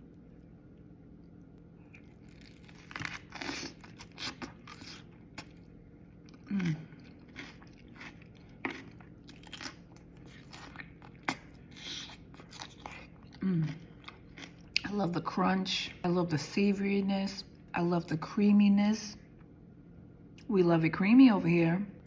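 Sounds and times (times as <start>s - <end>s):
chewing crisp cucumber: 0.0s - 15.0s.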